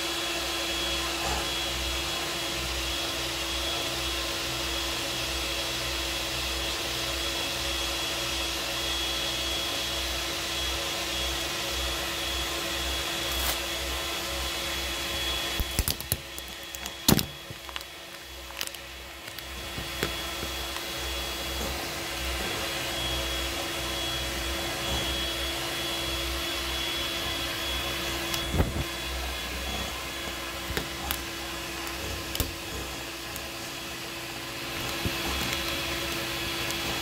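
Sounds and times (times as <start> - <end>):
appliance motor whirring: 6.6 - 37.0.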